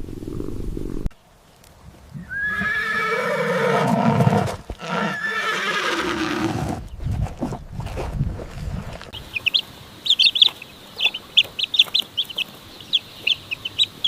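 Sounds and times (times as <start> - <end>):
horse whinnying: 2.2 - 6.8.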